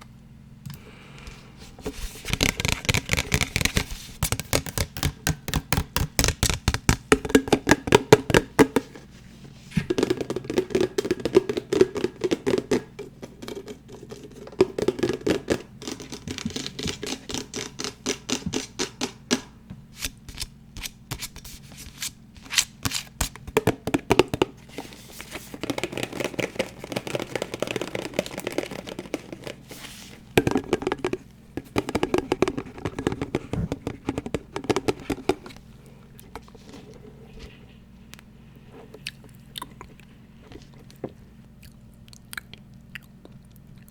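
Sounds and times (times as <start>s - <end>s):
fast tapping on hard objects: 2.2s - 9.0s, 9.7s - 19.6s, 23.2s - 35.6s.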